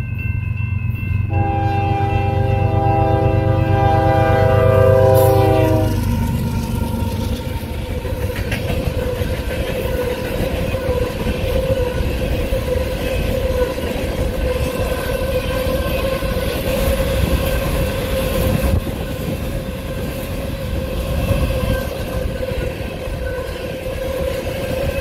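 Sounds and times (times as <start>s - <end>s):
locomotive engine rumble: 0.1s - 11.4s
locomotive air horn: 1.3s - 6.2s
train wheels clattering on rail joints: 6.0s - 25.0s.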